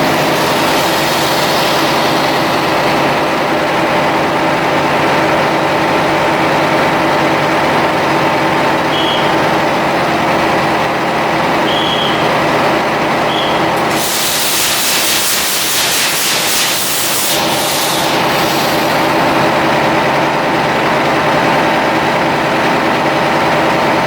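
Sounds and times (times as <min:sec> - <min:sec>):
loud rushing hiss: 0:00.0 - 0:04.2, 0:13.4 - 0:19.8
diesel machinery running: 0:00.0 - 0:24.0.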